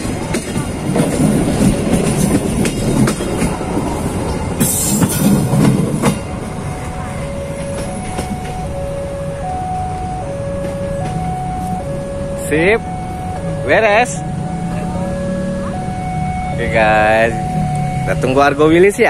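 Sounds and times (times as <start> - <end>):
train wheels clickety-clack: 0.0 - 6.6, 7.3 - 8.7, 10.4 - 11.8
train rumble: 0.0 - 19.0.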